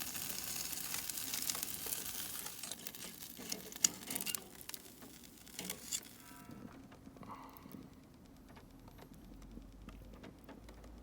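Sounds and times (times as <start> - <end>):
meat sizzling on a grill: 0.0 - 6.3
tongs clicking: 0.1 - 6.3.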